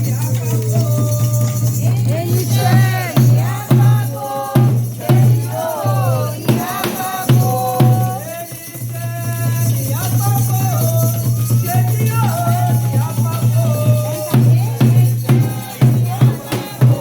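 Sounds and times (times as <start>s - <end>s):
sharp drum strikes: 0.0s - 8.9s
drums: 0.0s - 17.0s
shaker rattle: 0.0s - 17.0s
voices singing a chant: 0.0s - 17.0s.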